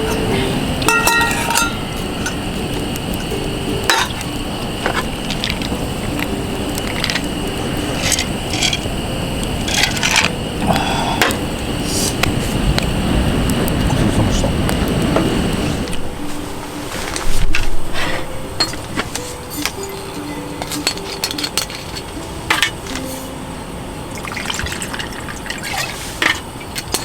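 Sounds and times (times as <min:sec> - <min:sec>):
dishes and utensils clinking: 0:00.0 - 0:08.9, 0:15.9 - 0:23.3, 0:24.2 - 0:27.0
wind: 0:00.0 - 0:27.0.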